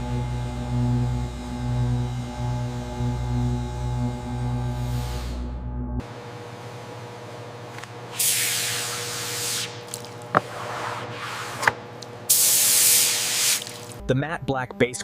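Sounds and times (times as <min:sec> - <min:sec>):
paint spray gun hissing: 0:12.3 - 0:13.9.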